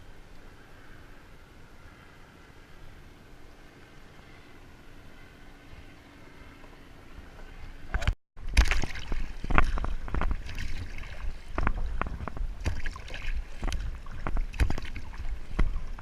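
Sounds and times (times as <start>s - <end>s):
paddle blades splashing: 3.6s - 16.0s
water sloshing around kayak: 6.4s - 16.0s.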